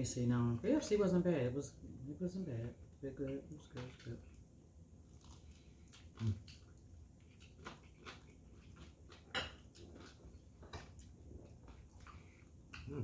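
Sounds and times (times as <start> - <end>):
person chewing: 5.1 - 13.0.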